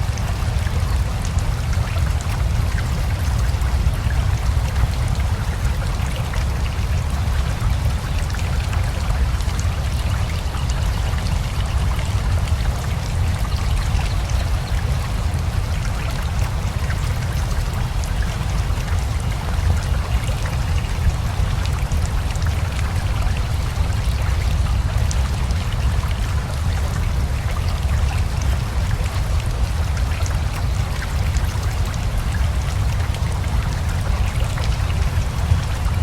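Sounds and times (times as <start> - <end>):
rushing river: 0.0 - 36.0.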